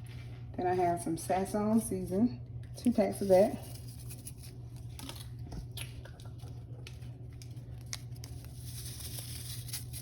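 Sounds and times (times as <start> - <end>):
seasoning packets tearing and rustling: 6.2 - 10.0.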